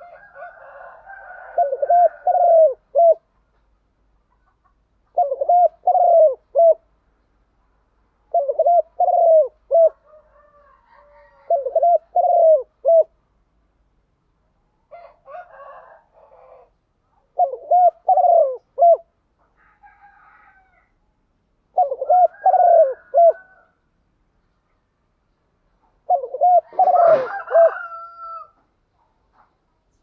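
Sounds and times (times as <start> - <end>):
doves cooing: 0.0 - 3.3, 5.1 - 6.9, 8.3 - 13.2, 14.9 - 20.8, 21.7 - 23.8, 25.9 - 28.5.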